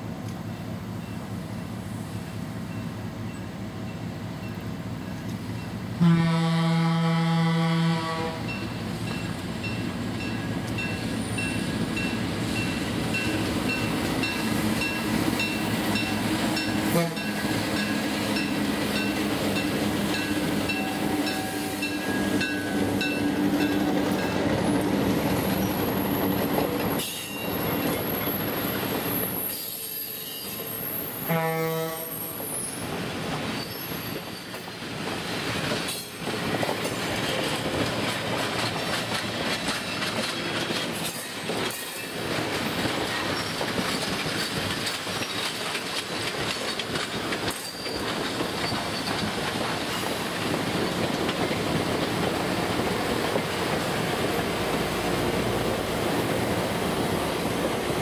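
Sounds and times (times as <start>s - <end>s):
train horn blast: 6.0s - 8.6s, 16.8s - 17.5s, 31.2s - 32.5s
train wheels rolling on rails: 7.4s - 31.4s, 32.0s - 58.0s
locomotive bell ringing: 8.5s - 24.4s.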